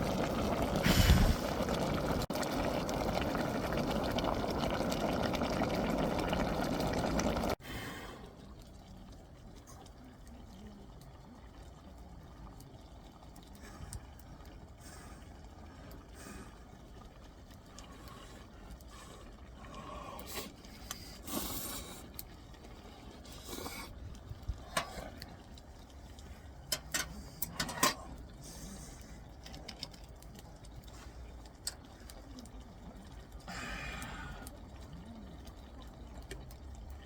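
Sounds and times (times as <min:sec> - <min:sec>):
clicks and light knocks: 0:26.2 - 0:28.3.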